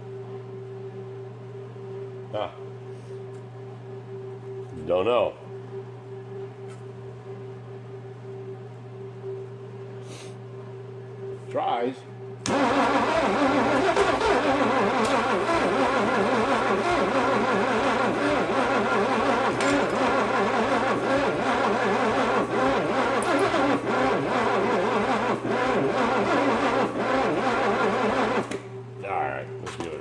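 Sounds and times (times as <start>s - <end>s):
starter cranking engine: 12.5s - 28.6s.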